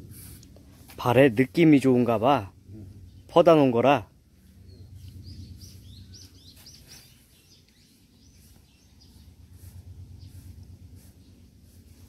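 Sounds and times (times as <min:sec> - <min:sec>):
low steady hum: 0:00.0 - 0:12.0
small bird chirping: 0:04.4 - 0:12.0.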